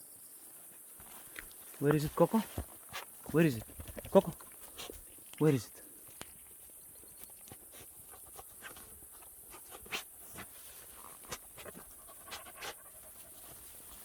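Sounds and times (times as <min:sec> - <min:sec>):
dry leaves and twigs crackling: 0:00.8 - 0:12.3
dog panting: 0:07.5 - 0:14.0.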